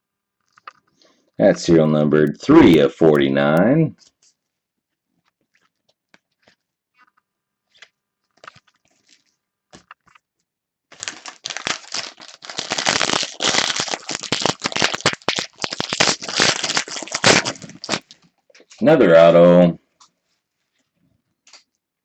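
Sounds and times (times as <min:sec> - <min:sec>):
wrapper being torn and crinkled: 0:10.9 - 0:18.3.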